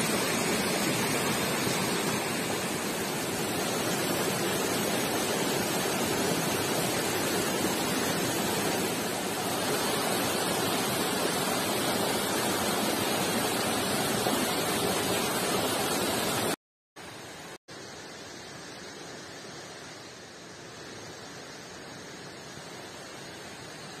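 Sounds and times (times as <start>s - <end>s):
stream water rushing: 0.0s - 17.6s.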